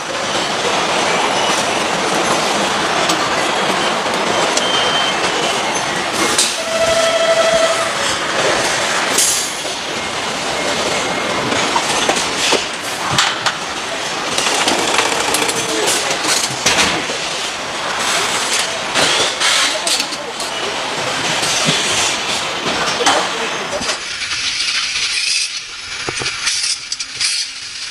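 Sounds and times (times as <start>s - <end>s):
machinery clanking and clicking: 14.3s - 17.5s.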